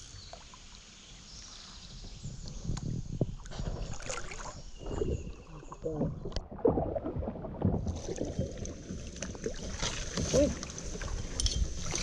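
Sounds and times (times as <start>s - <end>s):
paddle strokes in water: 3.3s - 12.0s
paddle knocking against hull: 6.0s - 8.3s.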